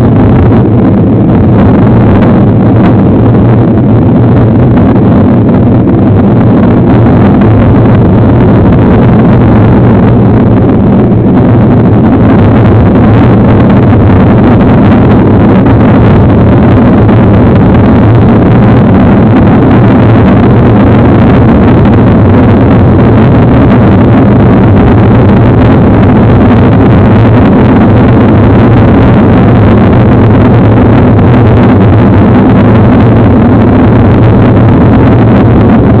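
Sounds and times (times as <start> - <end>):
wind rush on microphone: 0.0 - 36.0.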